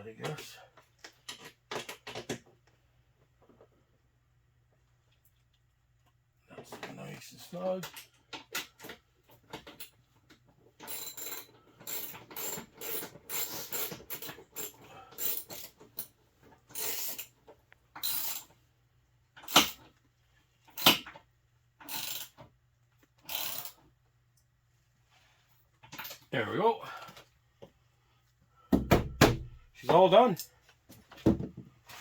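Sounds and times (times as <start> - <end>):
hand ratchet clicking: 21.8 - 22.4, 23.2 - 23.8.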